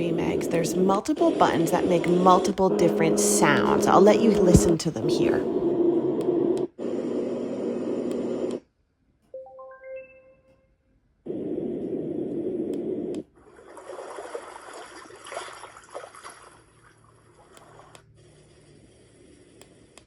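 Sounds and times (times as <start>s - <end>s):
climbing beep-like notes: 9.4s - 10.7s.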